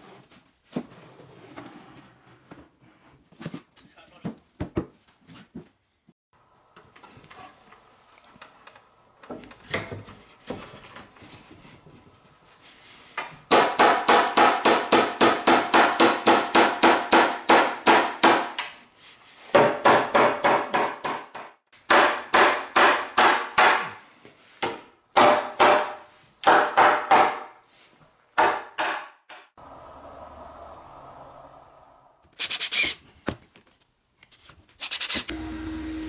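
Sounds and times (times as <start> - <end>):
rapid hammer strikes on wood: 13.5 - 18.6, 19.5 - 24.0, 24.6 - 27.5, 28.4 - 29.2.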